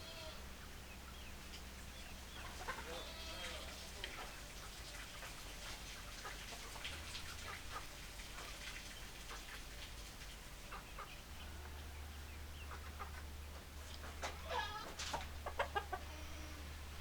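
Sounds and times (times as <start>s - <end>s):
hens clucking: 2.3s - 8.6s, 10.6s - 17.0s.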